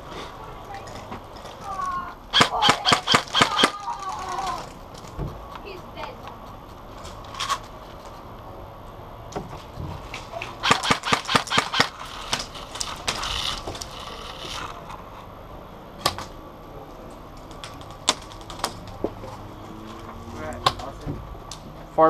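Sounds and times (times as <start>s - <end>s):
airsoft gun shots: 2.3s - 3.8s, 10.6s - 12.0s
sharp gun cracks: 2.3s - 4.0s, 10.6s - 12.5s.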